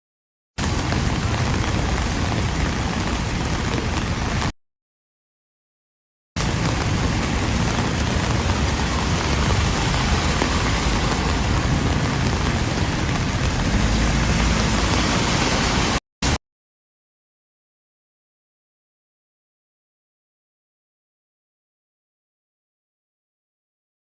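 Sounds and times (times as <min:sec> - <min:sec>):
heavy rain hissing: 0:06.4 - 0:16.0
low rumble: 0:06.5 - 0:16.0.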